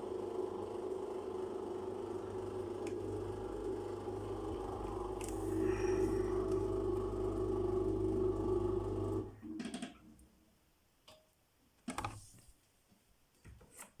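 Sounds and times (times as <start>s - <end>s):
washing machine humming: 0.0s - 9.5s.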